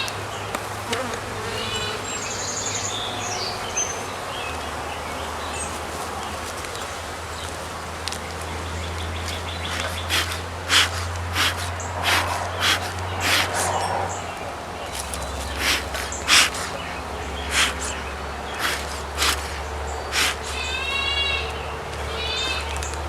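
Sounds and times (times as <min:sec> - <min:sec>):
birds chirping: 0:00.0 - 0:23.0
honeybees humming: 0:00.8 - 0:03.8, 0:08.9 - 0:22.9.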